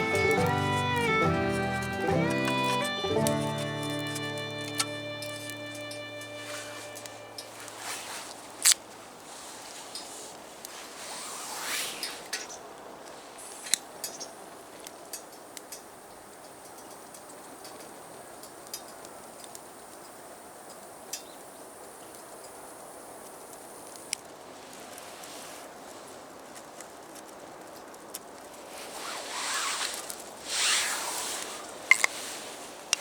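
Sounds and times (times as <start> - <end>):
faint high-pitched whine: 0.0 - 8.8
handling clicks and scrapes: 0.0 - 8.8, 28.7 - 33.0
rustling: 0.0 - 13.8, 28.1 - 33.0.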